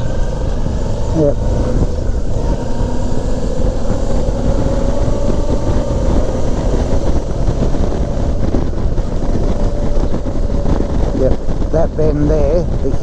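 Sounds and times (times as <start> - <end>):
motorcycle engine running: 0.0 - 13.0
wind rushing on microphone: 0.0 - 13.0.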